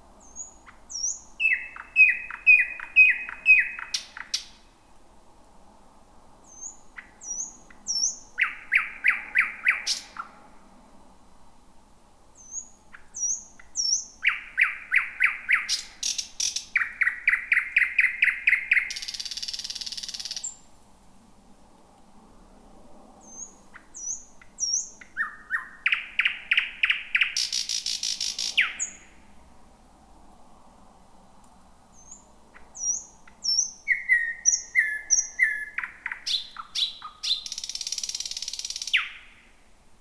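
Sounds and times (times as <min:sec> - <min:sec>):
nightingale singing: 0:00.2 - 0:04.8, 0:06.4 - 0:10.4, 0:12.4 - 0:20.7, 0:23.2 - 0:29.2, 0:31.9 - 0:39.6.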